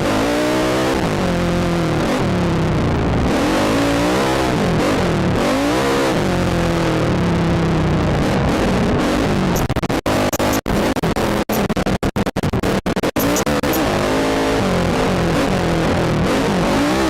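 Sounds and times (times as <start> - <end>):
atv engine revving: 0.0 - 11.7, 13.0 - 17.0
steady rushing noise: 6.8 - 16.5.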